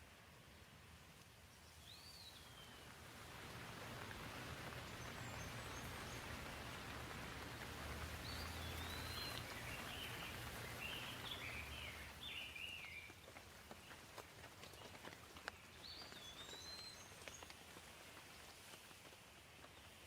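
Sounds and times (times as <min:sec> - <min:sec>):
gentle rain falling: 0:00.0 - 0:20.0
bird singing warbling phrases: 0:08.2 - 0:13.1.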